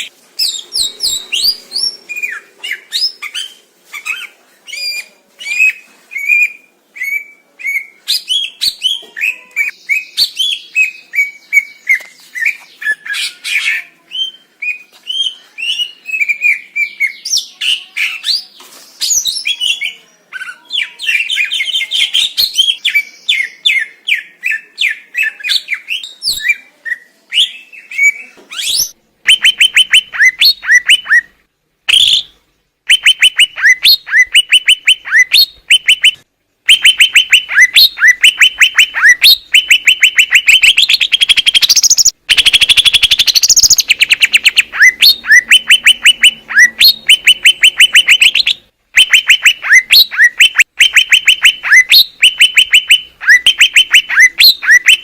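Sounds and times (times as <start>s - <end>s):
bird singing trilled phrases: 32.9s - 55.0s.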